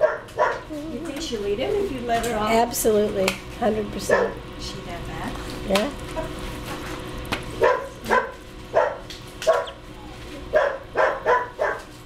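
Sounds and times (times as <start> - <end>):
dog barking: 0.0 - 0.7, 4.1 - 4.4, 7.6 - 12.0.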